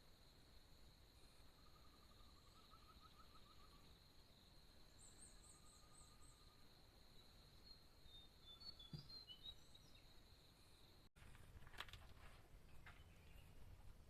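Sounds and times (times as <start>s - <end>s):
high insect drone: 0.0s - 8.3s
bird trills and chirps: 1.4s - 3.9s, 7.6s - 10.1s.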